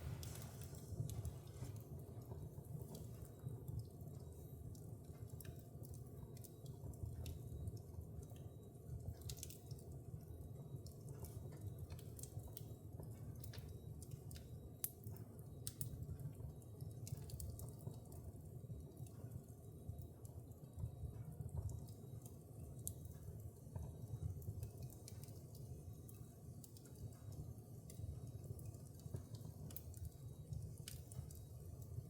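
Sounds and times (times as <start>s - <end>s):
logs crackling and popping: 0.0s - 8.4s, 9.0s - 9.9s, 15.6s - 16.0s, 23.8s - 32.0s
low rumble of flames: 0.0s - 32.0s.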